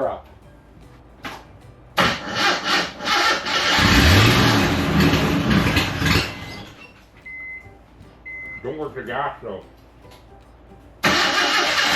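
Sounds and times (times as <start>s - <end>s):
starter cranking engine: 2.0s - 6.2s, 11.0s - 11.9s
car engine revving: 2.0s - 6.6s.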